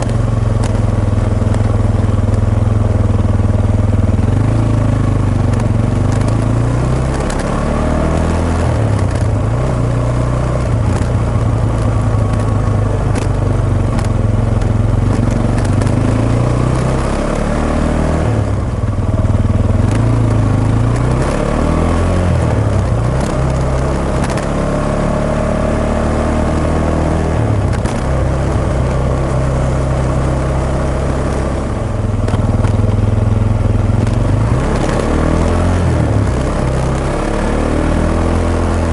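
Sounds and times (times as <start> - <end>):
motorcycle engine running: 0.0 - 38.9
scratchy microphone clicks: 5.5 - 9.4, 10.5 - 17.0, 22.8 - 24.5.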